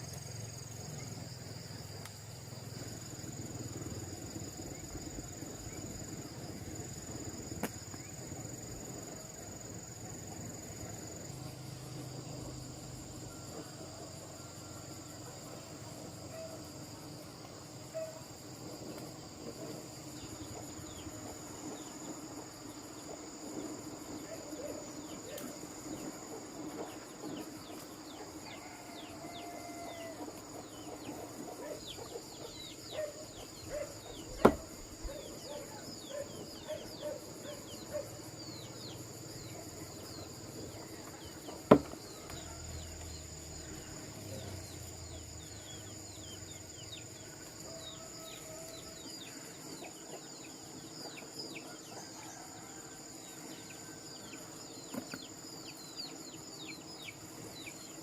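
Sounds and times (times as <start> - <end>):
sharp knock: 41.7 - 42.0.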